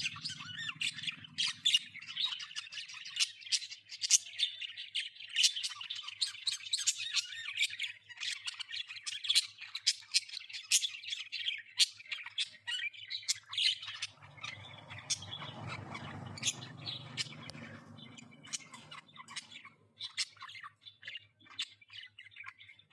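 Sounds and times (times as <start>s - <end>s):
budgerigars chattering: 0.0s - 22.9s
low rumble: 14.2s - 19.7s.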